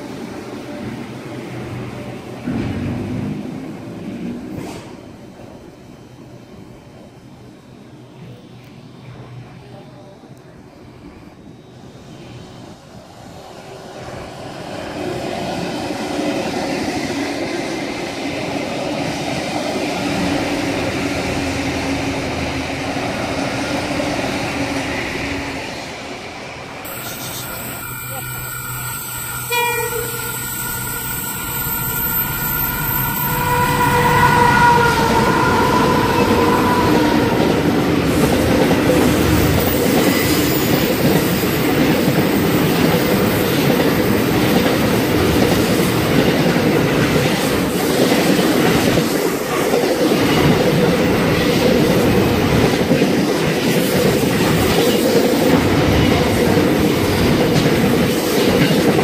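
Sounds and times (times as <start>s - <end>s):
train horn: 26.9s - 37.6s.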